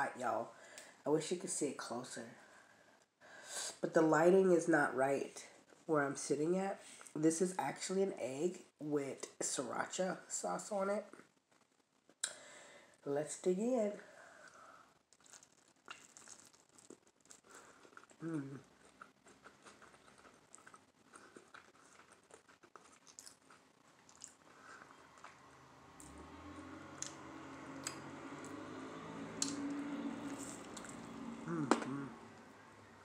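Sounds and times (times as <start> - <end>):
person chewing crunchy bread: 14.5 - 26.1
low hum through full mouth: 17.4 - 19.0, 24.2 - 33.0.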